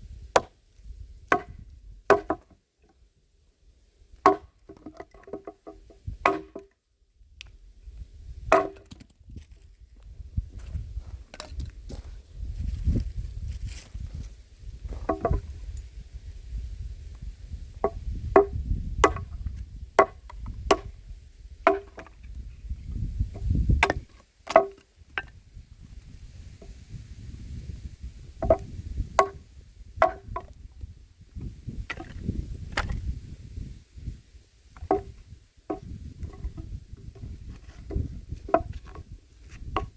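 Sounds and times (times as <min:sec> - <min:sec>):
axe chopping wood: 0:00.3 - 0:00.6, 0:01.3 - 0:02.6, 0:04.2 - 0:06.7, 0:08.5 - 0:09.1, 0:15.0 - 0:15.4, 0:17.8 - 0:20.9, 0:21.7 - 0:22.2, 0:23.4 - 0:25.3, 0:28.4 - 0:30.5, 0:34.8 - 0:36.7, 0:37.8 - 0:39.0.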